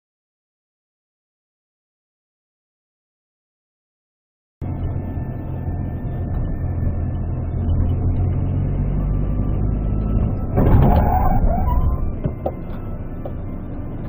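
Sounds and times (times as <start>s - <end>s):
vehicle engine and road noise: 4.6s - 14.0s
loud noisy clatter: 10.6s - 12.0s.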